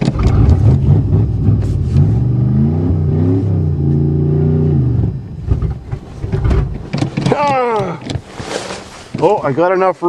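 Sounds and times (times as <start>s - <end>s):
car engine revving hard: 0.0s - 5.7s.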